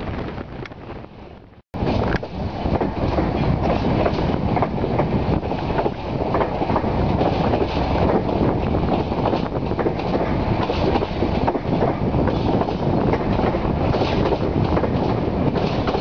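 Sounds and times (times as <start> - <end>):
train rumbling on track: 0.0 - 16.0
wheels clacking over rail: 1.8 - 16.0.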